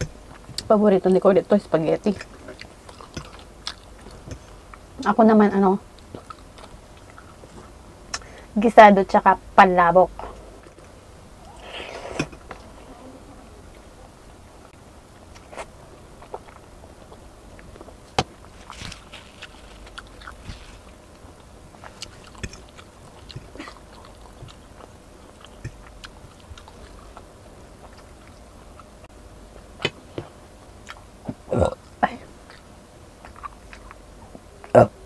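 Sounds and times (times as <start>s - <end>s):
person chewing and slurping: 2.2s - 4.9s, 15.2s - 28.9s.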